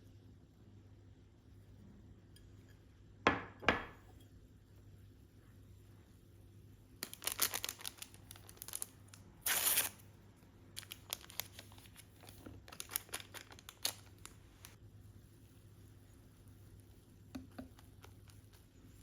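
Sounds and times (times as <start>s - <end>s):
paper or plastic crinkling: 7.0s - 10.0s, 10.8s - 14.8s
tearing sound: 8.7s - 10.0s.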